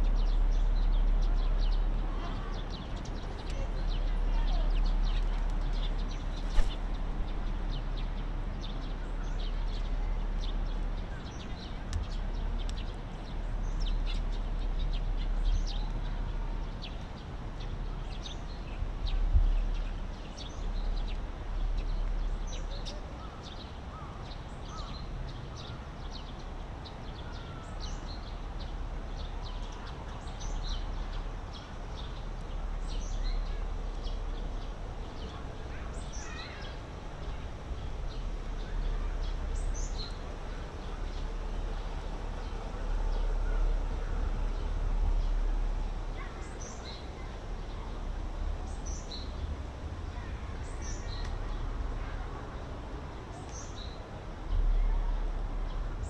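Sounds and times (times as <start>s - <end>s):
small birds chirping: 0.0s - 56.0s
steady low rumble: 36.7s - 56.0s.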